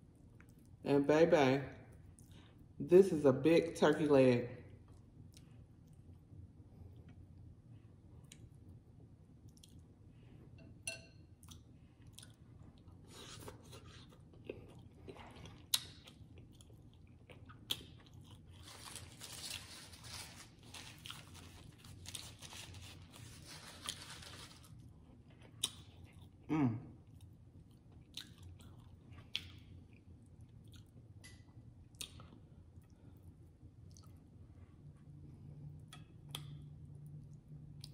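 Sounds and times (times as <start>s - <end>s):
chewing meat: 9.3s - 10.0s, 11.4s - 34.4s
paper napkin rustling: 18.6s - 24.7s.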